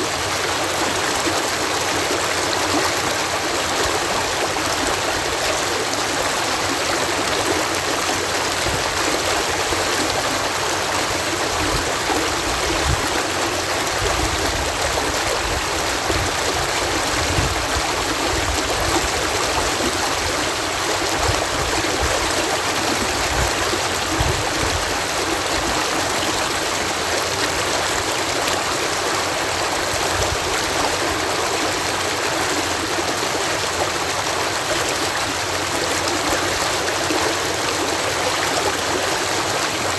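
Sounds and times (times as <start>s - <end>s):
water rushing and splashing: 0.0s - 39.9s
low thuds of churning water: 7.7s - 28.7s.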